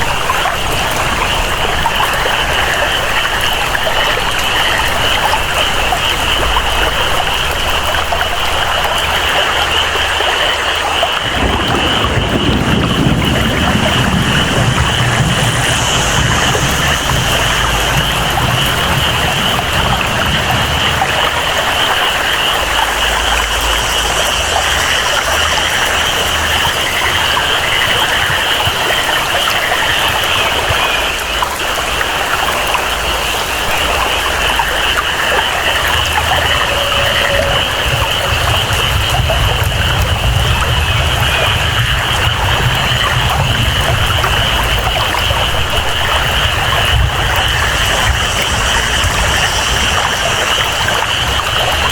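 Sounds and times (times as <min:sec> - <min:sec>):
flowing water: 0:00.0 - 0:51.9
low rumble of water: 0:00.0 - 0:51.9
steady rain: 0:00.0 - 0:51.9
high-pitched jungle chorus: 0:34.0 - 0:39.4, 0:45.9 - 0:51.9.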